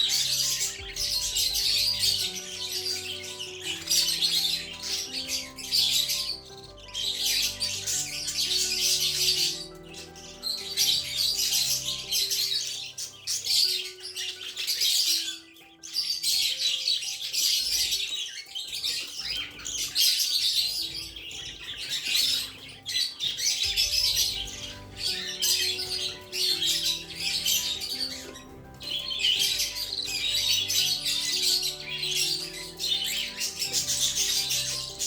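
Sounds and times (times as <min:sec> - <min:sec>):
background music: 0:00.0 - 0:35.0
budgerigars chirping and chattering: 0:00.0 - 0:35.0.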